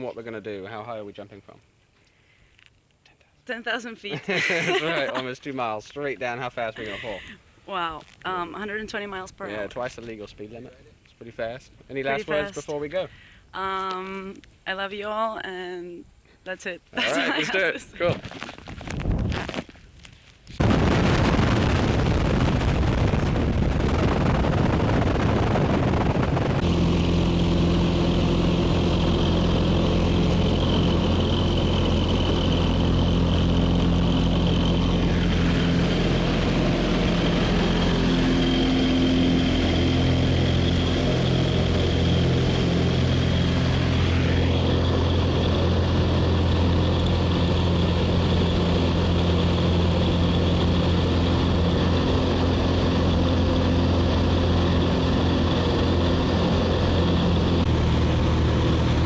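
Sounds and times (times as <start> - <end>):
propeller engine hum: 4.0 - 7.4, 20.6 - 59.0
rushing noise: 20.6 - 59.0.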